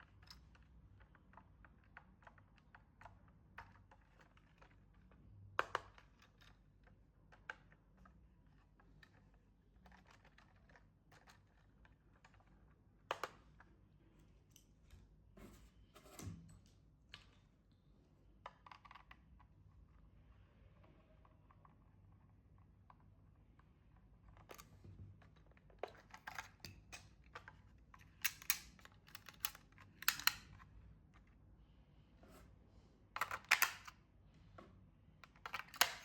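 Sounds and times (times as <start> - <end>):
plastic toy parts clicking: 25.8 - 30.6, 33.2 - 34.0, 35.2 - 36.0.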